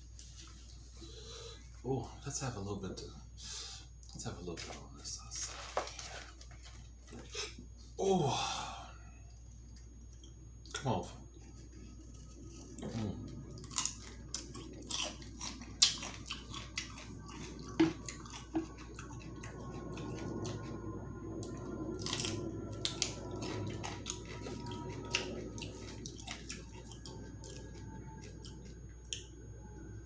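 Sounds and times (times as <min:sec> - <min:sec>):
wet chewing and smacking: 0:11.5 - 0:29.3.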